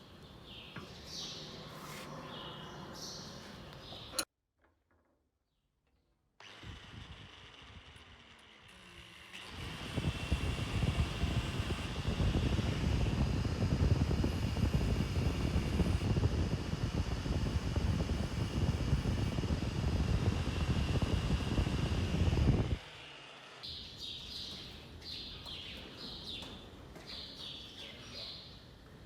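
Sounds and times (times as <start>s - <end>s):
power tool motor running: 6.4s - 23.7s.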